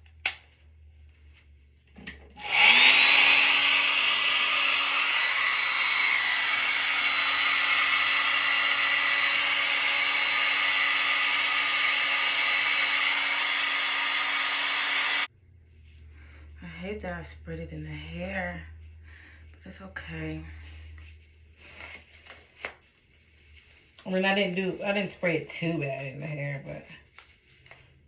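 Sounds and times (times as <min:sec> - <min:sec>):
hair dryer blowing: 0:02.4 - 0:15.3.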